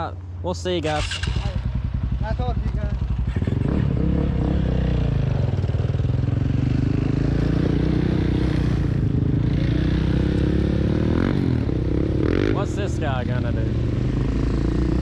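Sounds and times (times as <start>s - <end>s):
dirt bike engine running: 0.9s - 15.0s.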